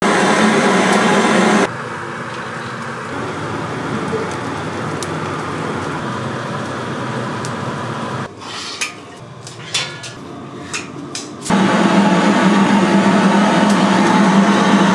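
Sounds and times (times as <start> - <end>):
steady cooking hiss: 0.0 - 9.0, 11.5 - 14.9.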